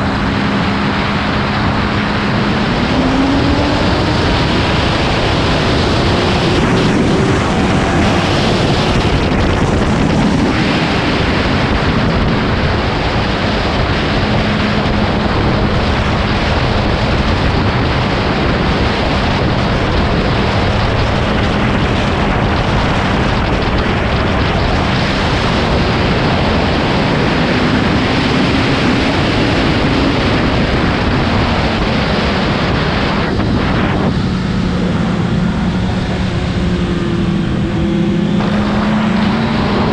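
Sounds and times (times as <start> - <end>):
motorcycle engine at speed: 0.0 - 39.9
wind rush on microphone: 0.0 - 39.9.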